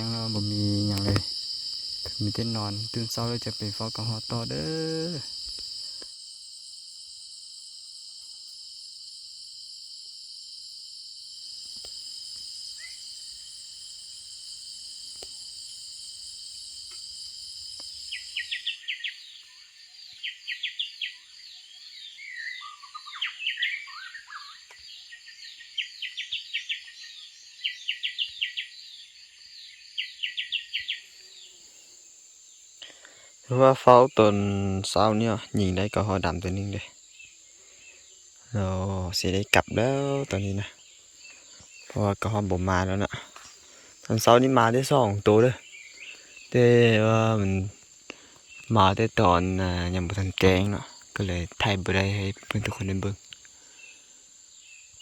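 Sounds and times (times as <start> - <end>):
crickets and insects chorus: 0.0 - 55.0
birds chirping and whistling: 22.0 - 28.7.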